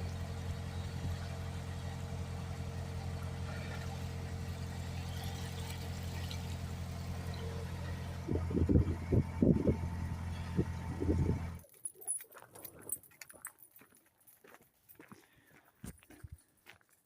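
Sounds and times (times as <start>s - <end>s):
engine idling: 0.0s - 11.6s.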